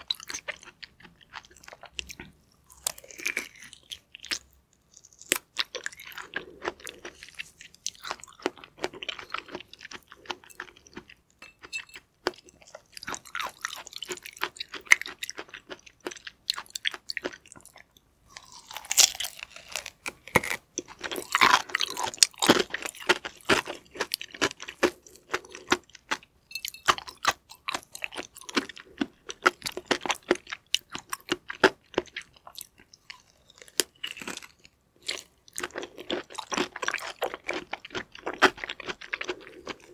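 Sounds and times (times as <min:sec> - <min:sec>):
wet chewing with crunchy clicks: 0:00.0 - 0:39.9.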